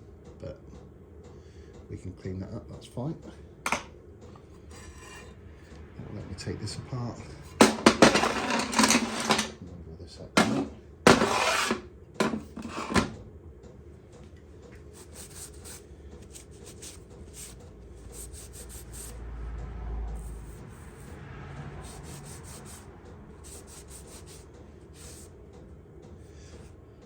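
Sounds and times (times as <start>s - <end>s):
metal scraping on metal: 4.4s - 5.7s, 7.2s - 9.6s, 10.4s - 13.1s.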